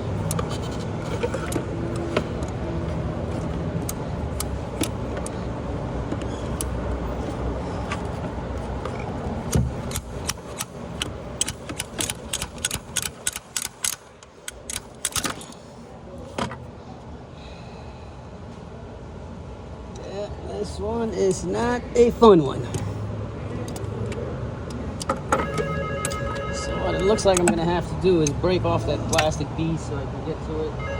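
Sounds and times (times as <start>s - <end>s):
steady low hum: 0.0s - 30.9s
metallic clicks of hand tools: 9.8s - 15.6s.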